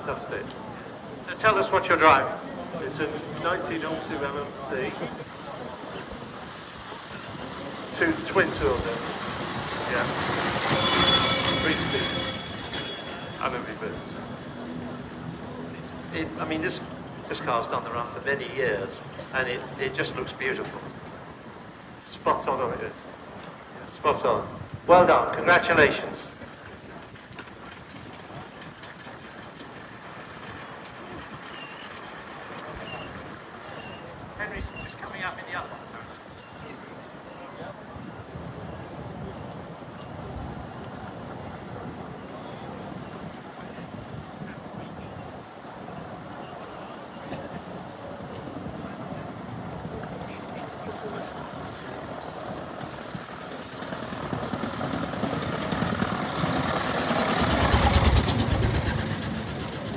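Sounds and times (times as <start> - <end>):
car engine chugging: 1.4 - 17.5, 50.2 - 59.9.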